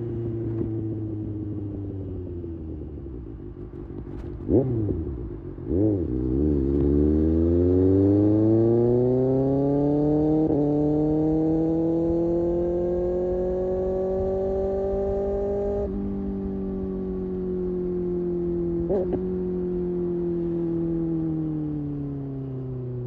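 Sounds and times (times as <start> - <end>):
motorcycle engine revving: 3.7 - 21.4.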